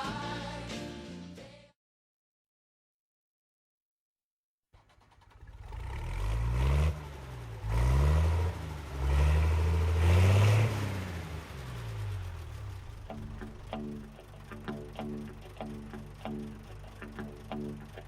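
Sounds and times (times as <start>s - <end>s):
tractor engine revving: 4.8s - 18.0s.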